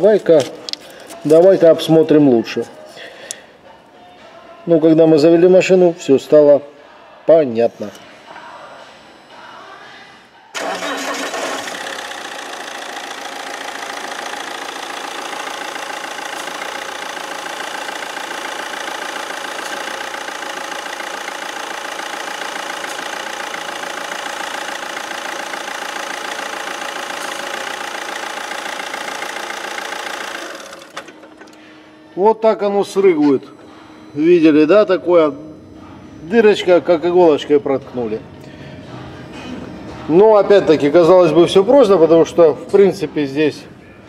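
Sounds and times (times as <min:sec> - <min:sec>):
diesel engine cranking and idling: 0:10.5 - 0:32.0.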